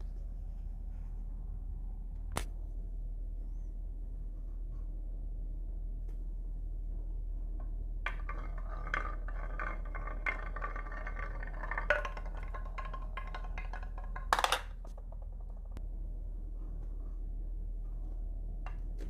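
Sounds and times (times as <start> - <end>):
marbles clattering down wooden run: 8.1 - 15.8.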